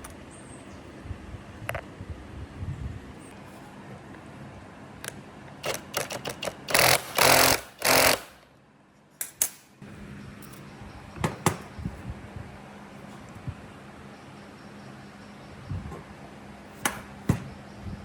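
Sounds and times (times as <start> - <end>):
sharp clicks and knocks: 5.1 - 8.3.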